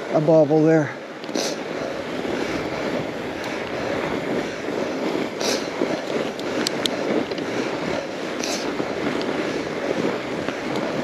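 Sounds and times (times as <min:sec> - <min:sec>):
bike tyres crunching on snow: 0:00.0 - 0:11.0
sharp clicks from bike: 0:05.1 - 0:07.6, 0:08.4 - 0:11.0.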